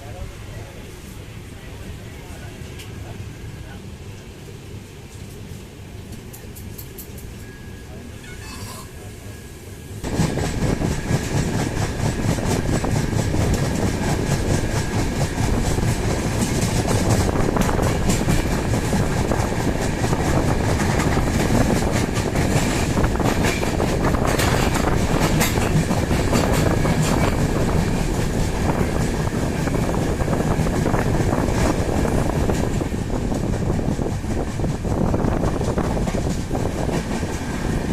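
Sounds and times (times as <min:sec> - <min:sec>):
train wheels clattering on track: 0:05.1 - 0:07.7, 0:10.0 - 0:37.9.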